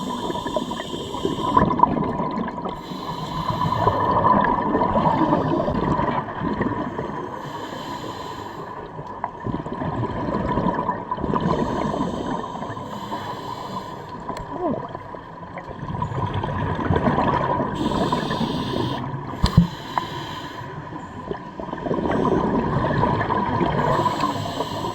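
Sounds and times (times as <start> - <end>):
diver inhaling through regulator: 0.0 - 1.8, 2.8 - 5.8, 6.8 - 8.9, 11.4 - 14.3, 17.8 - 21.2, 23.8 - 24.9
gurgling exhaled bubbles: 0.0 - 2.8, 3.4 - 7.2, 9.2 - 12.9, 14.2 - 20.0, 21.0 - 24.9
steady high hum: 17.8 - 20.9.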